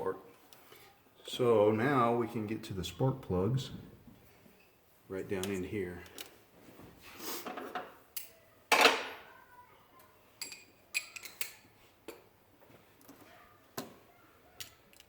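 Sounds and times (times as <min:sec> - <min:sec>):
metal hand tools clinking: 0:10.4 - 0:11.6.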